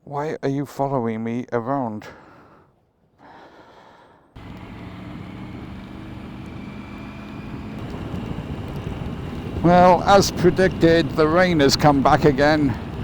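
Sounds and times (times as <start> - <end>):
motorcycle engine running: 4.4 - 13.0
wind and road noise: 4.4 - 13.0.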